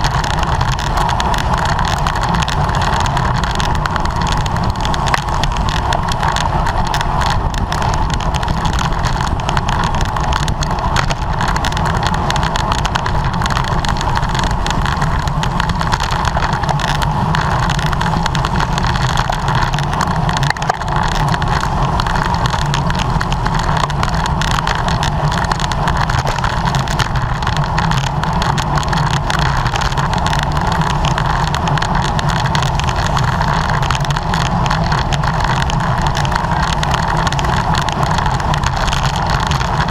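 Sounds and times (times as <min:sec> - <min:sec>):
tyre and road noise: 0:00.0 - 0:39.9
wind rush over microphone: 0:00.0 - 0:39.9.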